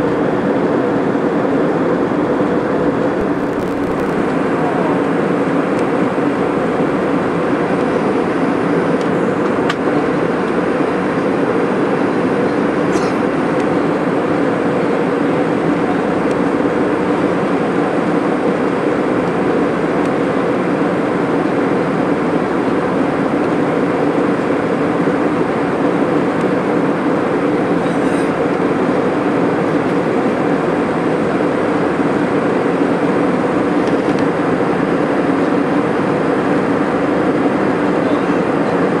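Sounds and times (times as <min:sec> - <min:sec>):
constant low hum: 0:00.0 - 0:39.0
jet engines droning: 0:00.0 - 0:39.0
rushing air: 0:03.1 - 0:05.6.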